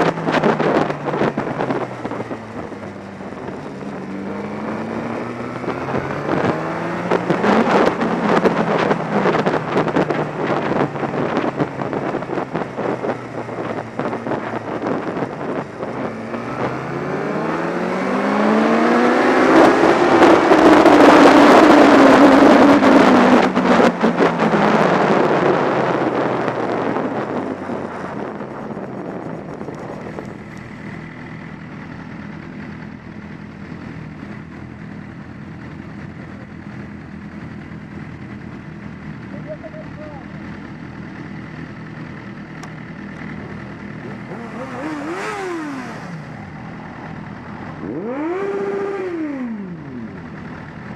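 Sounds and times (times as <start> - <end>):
wind rushing over microphone: 0.0 - 38.3
motorcycle engine accelerating: 0.0 - 50.9.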